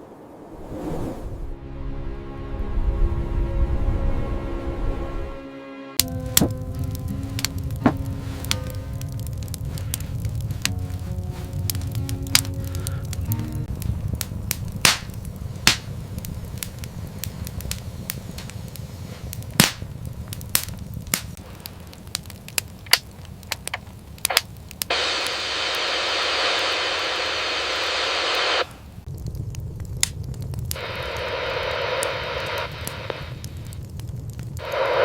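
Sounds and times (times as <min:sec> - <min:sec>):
low rumble: 0:00.0 - 0:05.4, 0:06.0 - 0:22.0
steady hiss: 0:06.0 - 0:29.2, 0:30.1 - 0:35.0
fire crackling and popping: 0:06.0 - 0:35.0.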